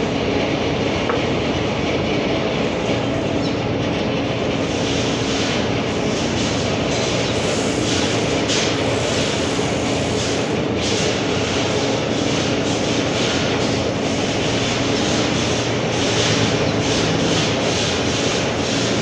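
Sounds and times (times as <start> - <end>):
machine humming and rushing: 14.1 - 19.0.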